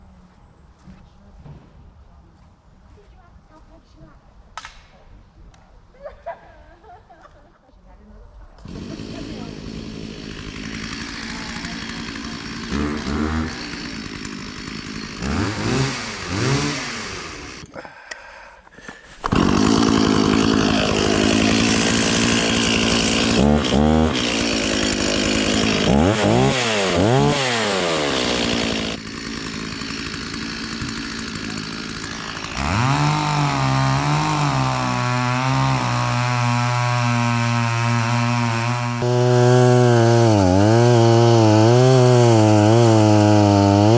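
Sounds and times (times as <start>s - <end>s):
chainsaw revving: 8.6s - 17.8s, 19.2s - 43.9s.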